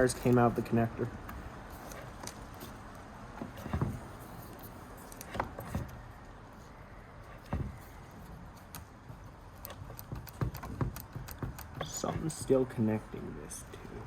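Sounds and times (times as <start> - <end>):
light knocks and clicks: 8.7 - 12.6.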